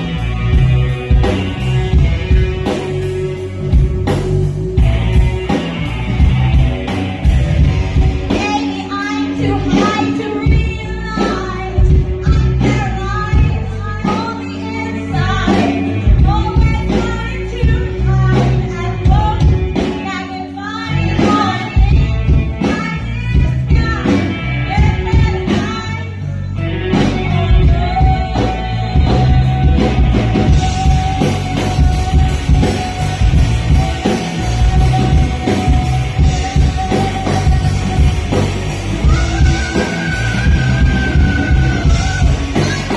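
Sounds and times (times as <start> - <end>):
drums and cymbals: 0.0 - 42.9
live rock band playing: 0.0 - 42.9
person singing: 6.8 - 42.9.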